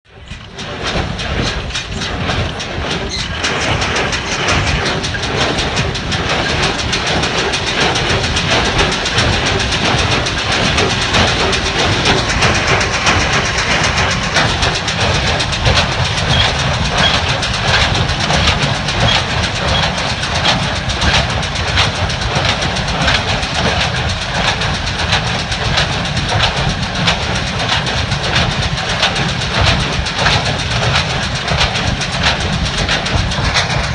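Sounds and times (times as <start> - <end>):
tractor engine running: 0.0 - 33.9
baler mechanism clattering: 0.1 - 33.9.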